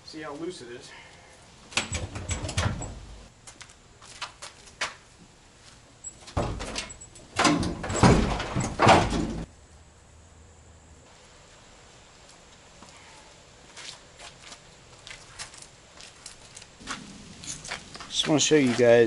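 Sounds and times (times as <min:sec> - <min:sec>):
metal clunking and rattling: 0:01.7 - 0:03.3, 0:06.2 - 0:09.5.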